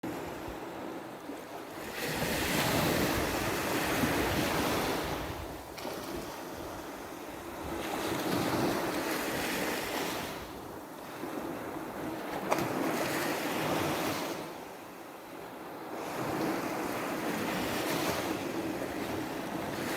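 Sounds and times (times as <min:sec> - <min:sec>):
waves splashing on beach: 0:00.0 - 0:14.8.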